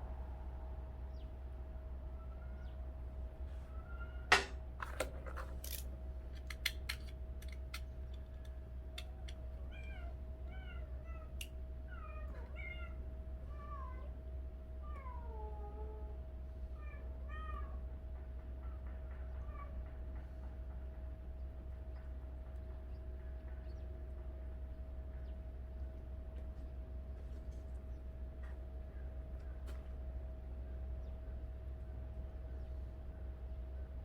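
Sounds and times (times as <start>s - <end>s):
cat meowing: 9.6s - 14.2s.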